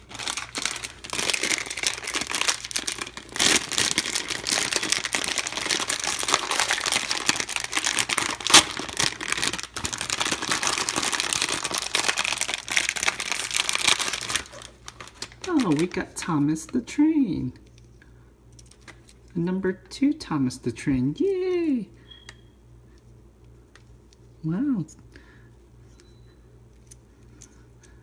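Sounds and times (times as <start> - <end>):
plastic foil crinkling: 0.0 - 16.3.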